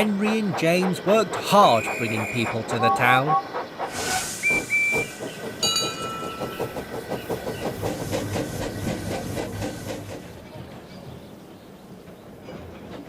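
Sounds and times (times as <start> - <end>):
rhythmic beat of train running: 0.0 - 13.0
steam train whistle: 1.7 - 5.1.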